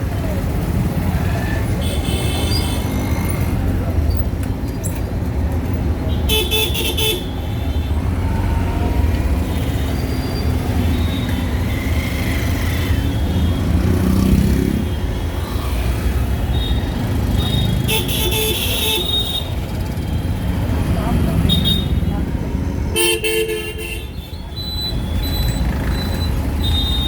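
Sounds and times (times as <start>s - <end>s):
auto-rickshaw engine and road rumble: 0.0s - 27.0s
horns honking: 16.4s - 20.4s, 21.3s - 22.1s, 22.9s - 27.0s.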